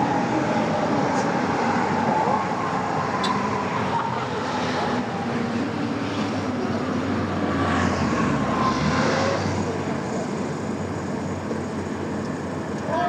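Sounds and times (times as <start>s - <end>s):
heavy engine running: 9.3s - 13.0s.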